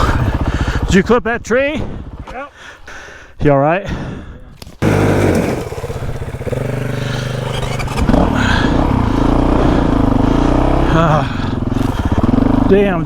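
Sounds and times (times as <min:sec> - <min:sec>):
dirt bike engine revving: 0:04.8 - 0:13.0.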